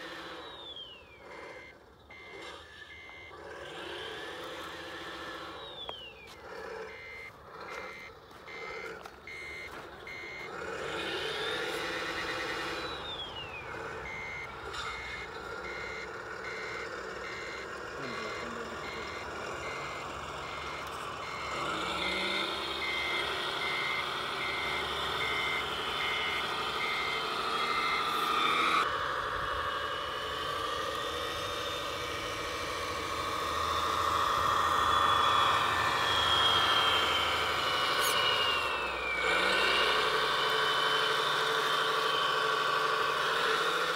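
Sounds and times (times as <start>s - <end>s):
motor whine: 0.0s - 43.9s
reversing beeps: 0.1s - 3.5s, 4.2s - 28.9s.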